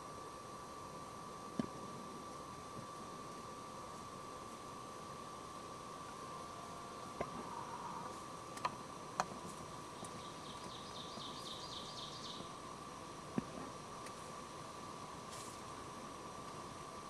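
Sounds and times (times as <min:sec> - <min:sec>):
faint steady tone: 0:00.0 - 0:17.0
steady hiss: 0:00.0 - 0:17.0.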